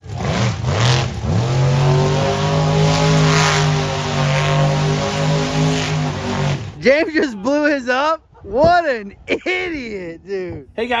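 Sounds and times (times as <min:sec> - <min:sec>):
car engine at high revs: 0:00.0 - 0:06.8.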